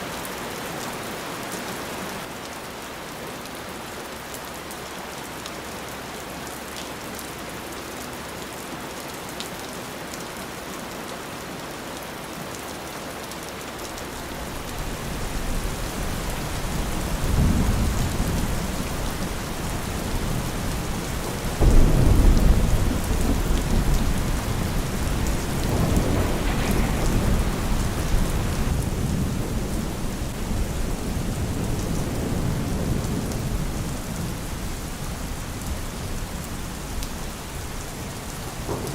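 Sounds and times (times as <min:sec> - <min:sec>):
heavy rain falling: 0:00.0 - 0:38.9
thunder clap: 0:14.1 - 0:33.6, 0:38.4 - 0:38.9
rolling thunder: 0:14.1 - 0:37.0, 0:37.6 - 0:38.9.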